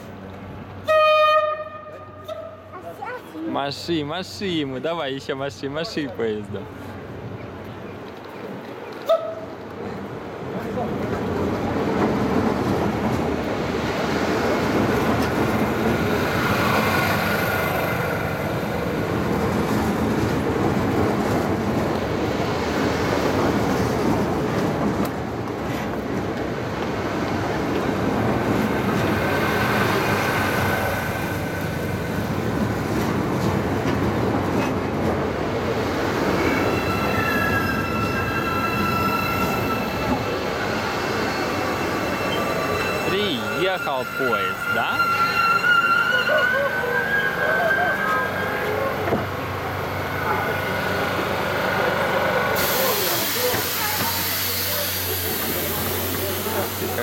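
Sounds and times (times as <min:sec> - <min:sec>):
train wheels and carriages rumbling: 0:00.0 - 0:57.0
high squealing tones: 0:36.1 - 0:49.1.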